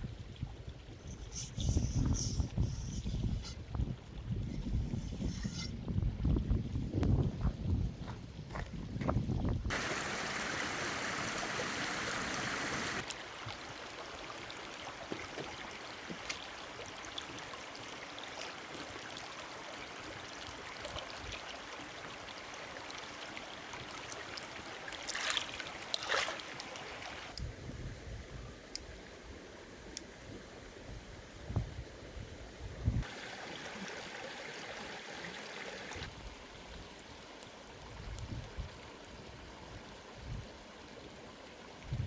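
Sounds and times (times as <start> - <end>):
running water: 9.7 - 27.4, 33.0 - 41.9.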